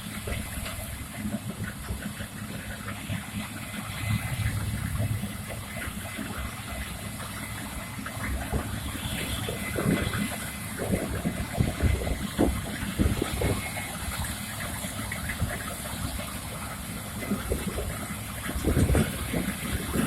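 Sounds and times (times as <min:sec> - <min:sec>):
combine harvester rumbling: 0:00.0 - 0:20.0.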